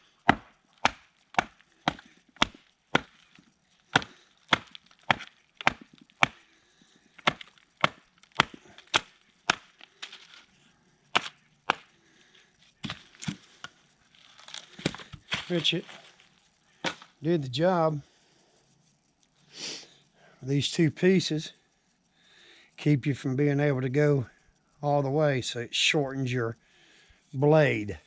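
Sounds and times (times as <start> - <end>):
knife chopping wood: 0.2 - 3.3, 3.9 - 6.4, 7.2 - 10.4, 11.2 - 11.9, 12.8 - 13.5, 14.3 - 16.1, 16.8 - 17.2.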